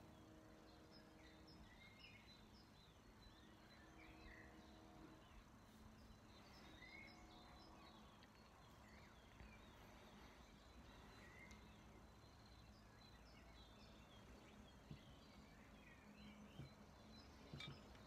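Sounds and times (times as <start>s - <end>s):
faint bird chirps: 0.0s - 18.0s
low steady background hum: 0.0s - 18.0s.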